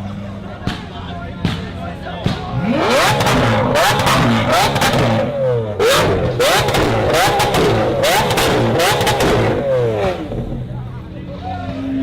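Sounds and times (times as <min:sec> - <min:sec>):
car engine revving hard: 0:02.6 - 0:10.6.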